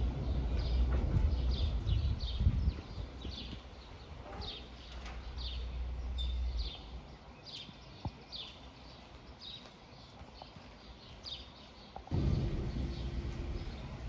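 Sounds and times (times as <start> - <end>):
low rumble of thunder: 0.0 - 3.5, 12.1 - 14.0
bird chirping: 0.0 - 14.0.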